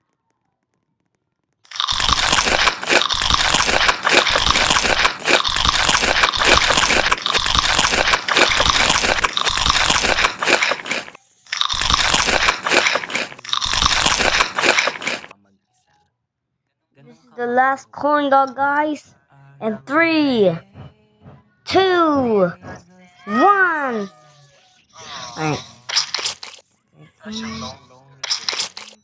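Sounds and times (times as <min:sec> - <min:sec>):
crunchy food being chewed: 0:01.7 - 0:15.3, 0:25.9 - 0:26.6, 0:28.2 - 0:29.0.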